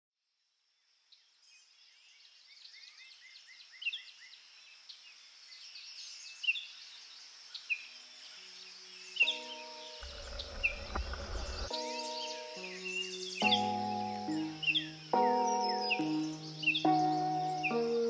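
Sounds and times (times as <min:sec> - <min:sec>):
birds chirping and calling: 0:07.6 - 0:18.0
faint music tones: 0:07.8 - 0:18.0.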